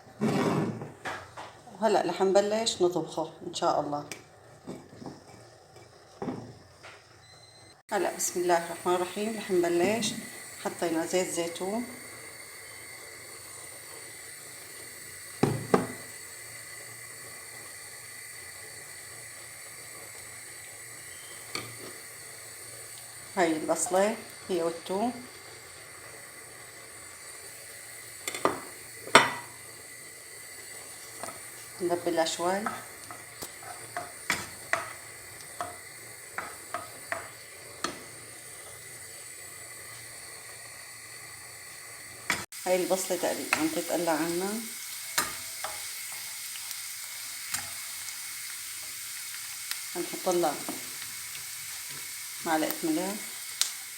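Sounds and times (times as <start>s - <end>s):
onion sizzling: 0.0s - 53.9s
cookware knocks: 15.4s - 16.0s, 28.3s - 29.5s
utensil scraping a pan: 32.6s - 35.0s.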